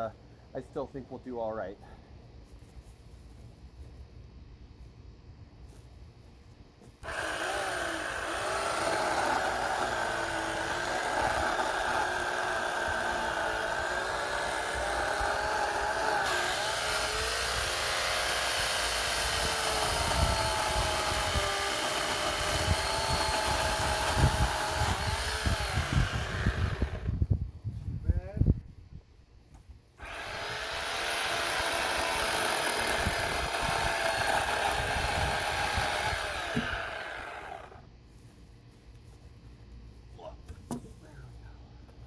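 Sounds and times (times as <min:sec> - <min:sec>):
electric chainsaw whining: 0:07.0 - 0:27.2, 0:30.0 - 0:37.8.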